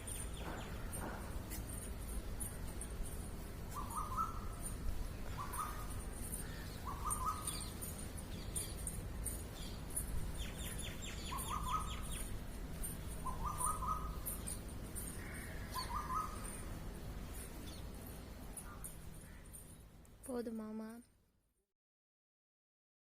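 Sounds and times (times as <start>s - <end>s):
bird rattling trill: 0.0s - 20.0s
high thin bird chirps: 3.7s - 16.8s.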